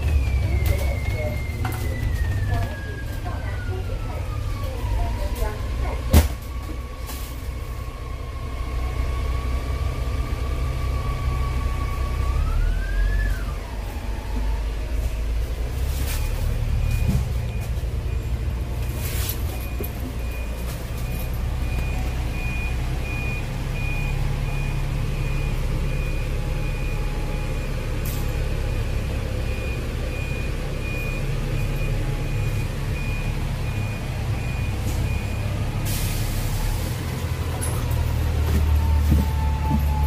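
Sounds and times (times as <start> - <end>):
bus engine rumble: 0.0 - 40.0
air brakes hissing: 35.8 - 37.0.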